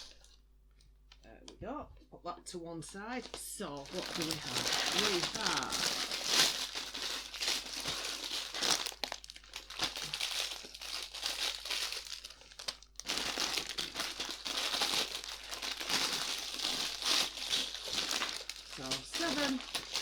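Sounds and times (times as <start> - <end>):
plastic bags crinkling: 0.0 - 0.4, 2.8 - 20.0.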